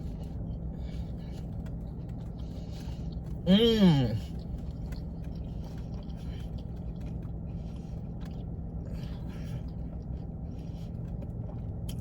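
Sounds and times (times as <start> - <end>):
person chewing a sandwich: 0.0 - 12.0
steady low hum: 0.0 - 12.0.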